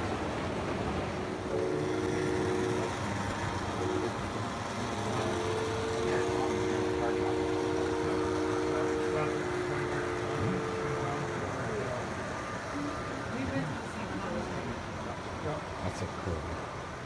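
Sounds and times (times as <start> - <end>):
model train horn blasts: 1.4 - 12.7
people chattering: 5.0 - 16.6.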